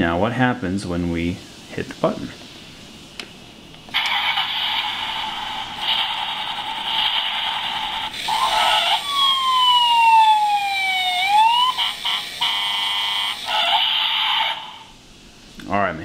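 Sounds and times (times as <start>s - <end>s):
toy motor whirring: 4.0s - 14.9s
toy siren sound effect: 8.2s - 14.8s.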